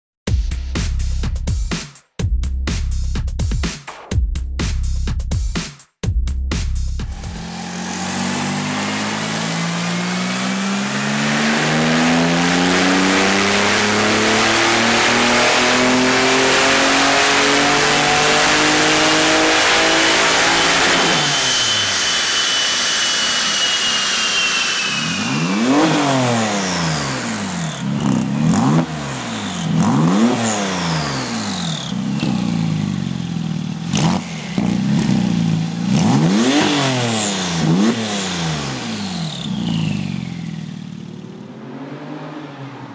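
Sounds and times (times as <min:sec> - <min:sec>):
car engine revving: 0:07.0 - 0:42.9
turbo whistle: 0:20.8 - 0:27.2.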